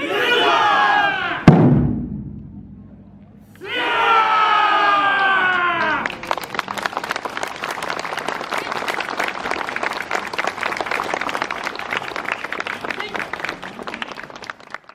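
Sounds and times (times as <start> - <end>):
audience applauding: 4.8 - 14.9.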